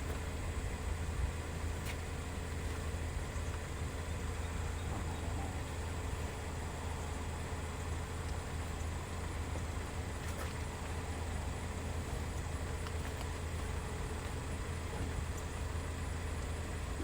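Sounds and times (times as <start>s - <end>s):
car interior hum and hiss: 10.6s - 17.0s.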